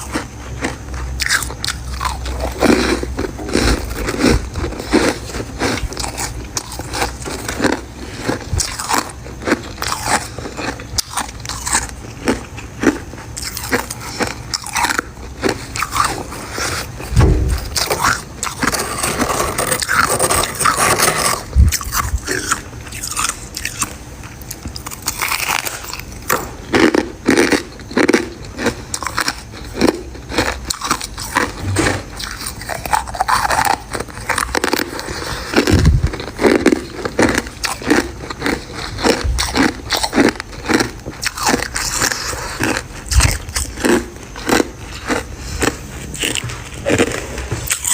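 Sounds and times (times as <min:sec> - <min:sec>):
ice being chewed: 0:00.0 - 0:47.9.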